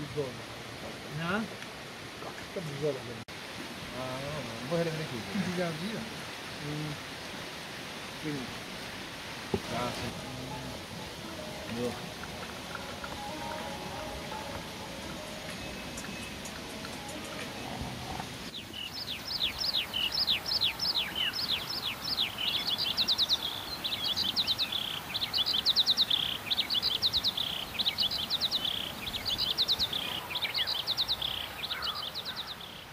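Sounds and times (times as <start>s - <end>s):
steady outdoor hiss: 0.0s - 32.9s
songbird singing: 9.5s - 32.9s.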